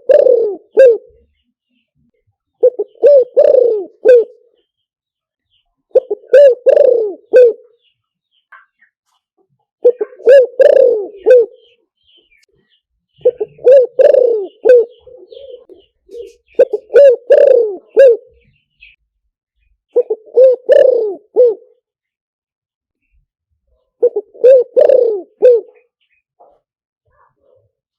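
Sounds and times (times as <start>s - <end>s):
dove cooing: 0.0s - 1.4s, 2.6s - 4.6s, 5.9s - 7.8s, 9.8s - 11.8s, 13.2s - 19.0s, 19.9s - 21.8s, 23.8s - 26.0s.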